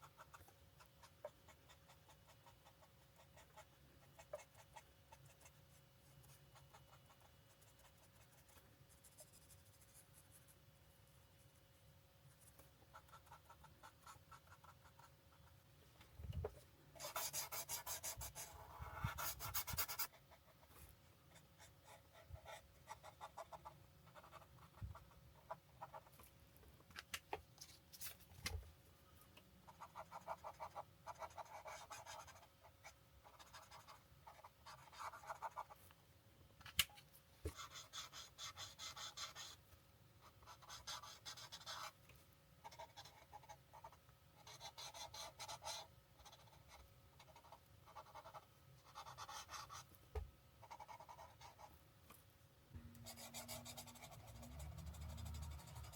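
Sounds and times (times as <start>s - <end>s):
marker scratching across paper: 17.0s - 20.8s, 21.6s - 26.1s, 29.7s - 32.5s, 33.2s - 35.8s, 37.5s - 39.6s, 40.3s - 42.0s, 42.6s - 49.8s, 50.6s - 51.7s, 53.0s - 55.9s.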